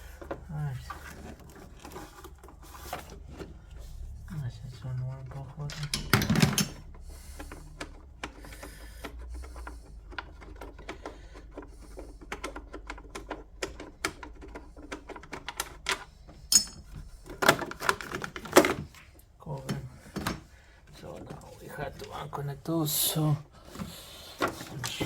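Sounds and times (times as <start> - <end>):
knocks of metal and plastic parts: 5.6 - 20.5.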